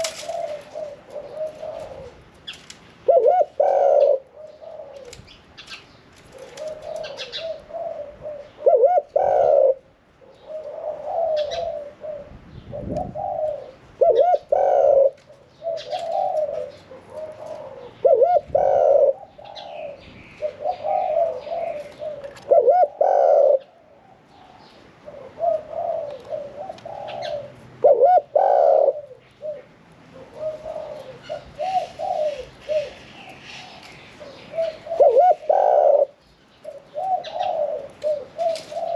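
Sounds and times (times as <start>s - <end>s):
dove cooing: 0.0s - 38.9s
small birds chirping: 10.2s - 27.7s, 28.5s - 38.9s.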